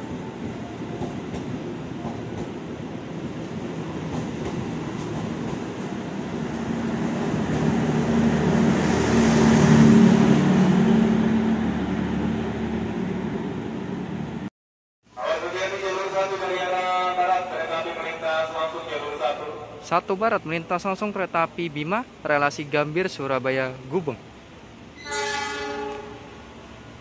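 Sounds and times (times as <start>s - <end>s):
train rumbling past on rails: 0.0s - 14.5s.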